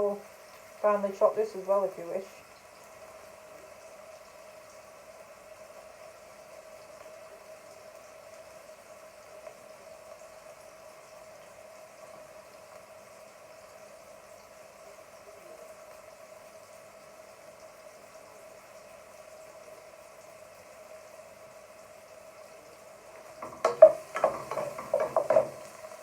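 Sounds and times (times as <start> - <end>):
chicken sizzling in oil: 0.0 - 26.0
steady hum: 23.2 - 26.0.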